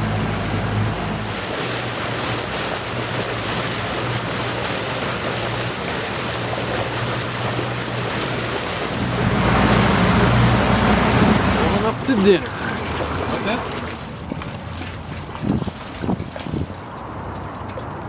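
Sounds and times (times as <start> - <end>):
water noise: 0.0 - 18.0
low steady hum: 8.8 - 13.0.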